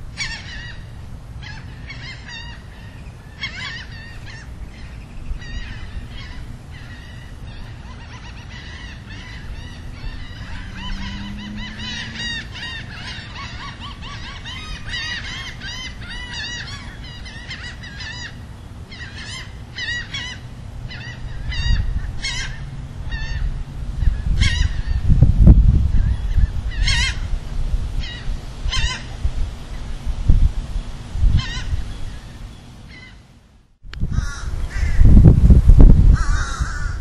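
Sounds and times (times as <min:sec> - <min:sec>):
birds chattering calls: 0:00.1 - 0:25.2, 0:25.9 - 0:27.4, 0:28.0 - 0:30.0, 0:31.3 - 0:33.3, 0:34.1 - 0:35.3, 0:36.1 - 0:37.0.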